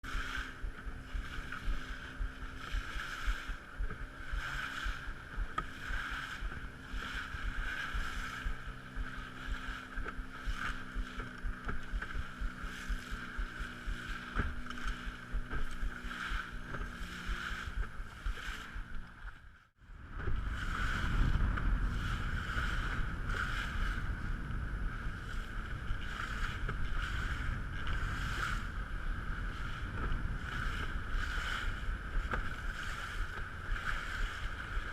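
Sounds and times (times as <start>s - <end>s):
boat motor running: 0.0s - 34.9s
wind on microphone: 0.0s - 34.9s.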